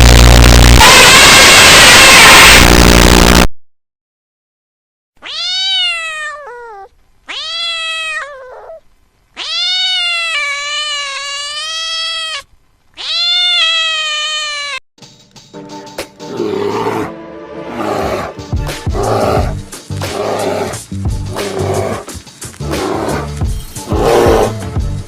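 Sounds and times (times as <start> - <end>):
cat meowing: 5.2 - 14.8.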